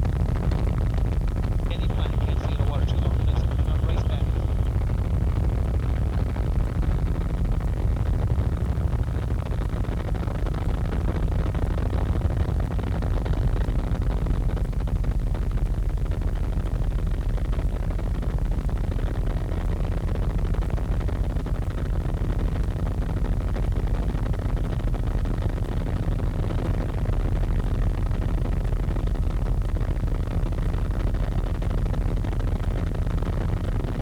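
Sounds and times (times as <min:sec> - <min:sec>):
helicopter engine and rotor drone: 0:00.0 - 0:14.4.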